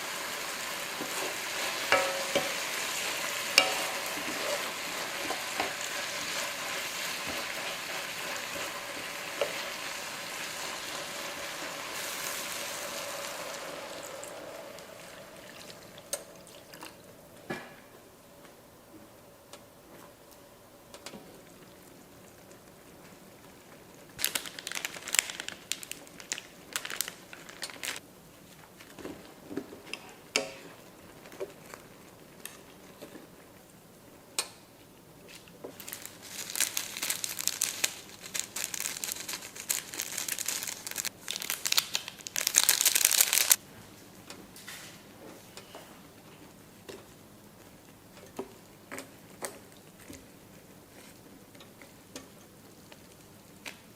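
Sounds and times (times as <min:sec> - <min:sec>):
plastic packaging crinkling and tearing: 0:24.2 - 0:28.0, 0:35.3 - 0:43.6.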